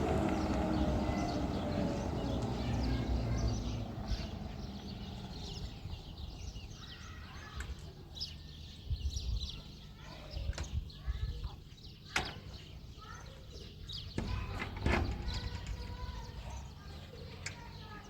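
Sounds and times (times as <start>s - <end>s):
car engine driving away: 0.0s - 6.8s
birds chirping: 0.0s - 18.0s.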